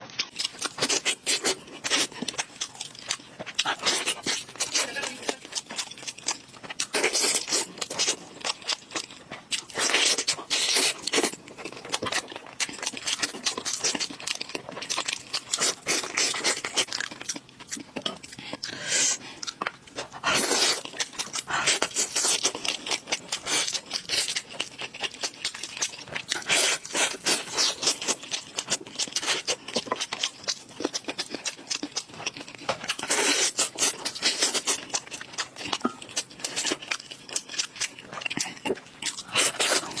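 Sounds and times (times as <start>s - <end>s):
food being chewed with crunches: 0.0s - 40.0s.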